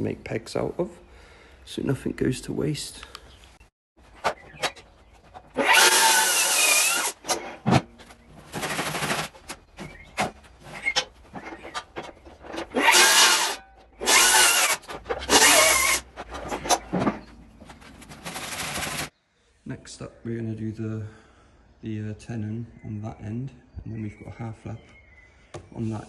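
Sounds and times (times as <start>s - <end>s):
power tool cutting wood: 5.6s - 7.2s, 12.7s - 16.0s.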